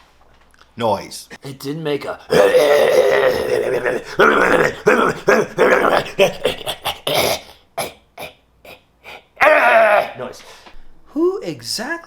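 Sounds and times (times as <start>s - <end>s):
person imitating car muffler: 1.3s - 10.3s.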